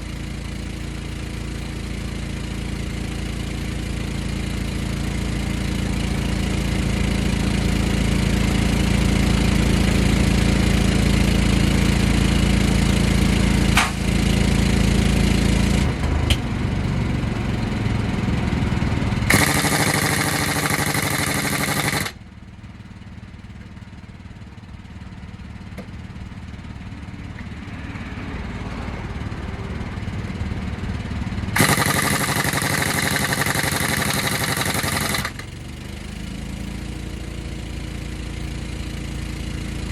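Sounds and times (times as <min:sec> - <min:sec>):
truck engine idling: 0:11.7 - 0:27.4, 0:29.1 - 0:38.6.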